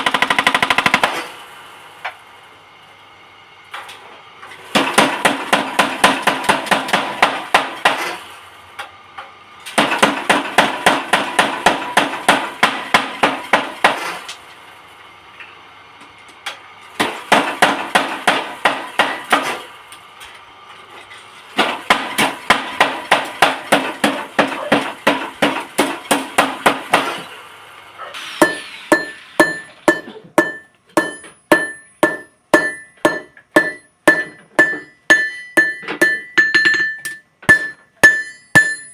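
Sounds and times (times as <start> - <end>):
hammer striking steel on anvil: 17.0 - 19.6, 28.4 - 38.9.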